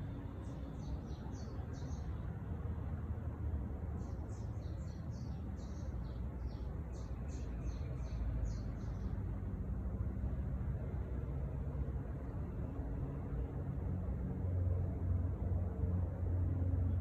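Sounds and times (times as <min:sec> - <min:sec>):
songbird chirping: 0:00.0 - 0:02.4, 0:03.9 - 0:09.3.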